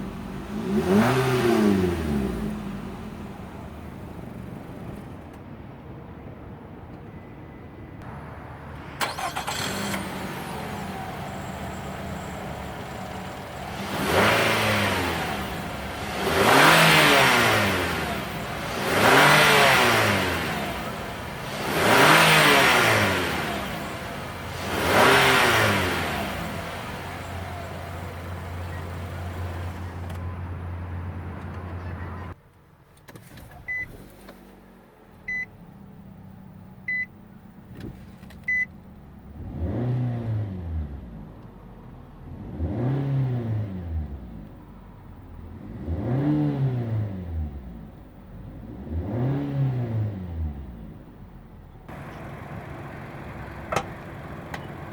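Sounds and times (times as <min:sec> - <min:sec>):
engine revving: 0:00.0 - 0:03.6, 0:08.8 - 0:32.4, 0:39.2 - 0:41.3, 0:42.3 - 0:44.7, 0:45.3 - 0:51.3
car engine starting and idling: 0:00.0 - 0:05.5, 0:08.0 - 0:54.9.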